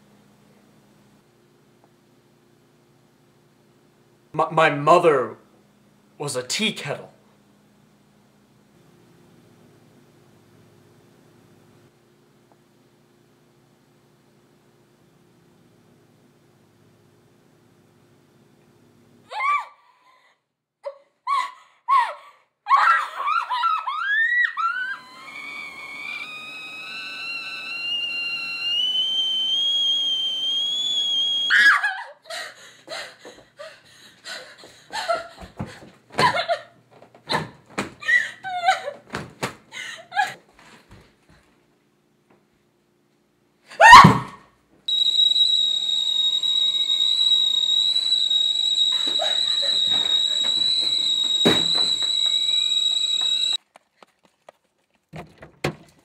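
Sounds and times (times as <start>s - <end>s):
tea kettle whistling: 24.0s - 31.8s, 44.9s - 53.6s.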